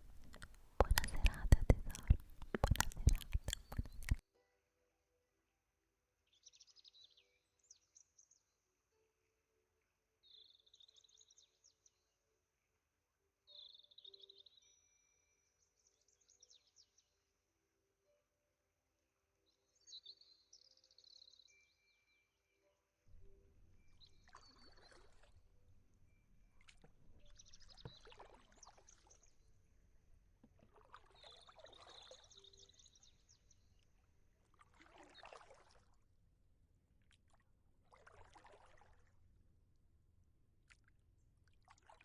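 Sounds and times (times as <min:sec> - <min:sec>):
lake water sloshing: 0:00.0 - 0:04.2, 0:23.9 - 0:25.5, 0:26.6 - 0:29.2, 0:30.5 - 0:32.9, 0:34.5 - 0:36.0, 0:37.1 - 0:39.1, 0:41.6 - 0:42.0
small birds chirping: 0:00.0 - 0:04.2.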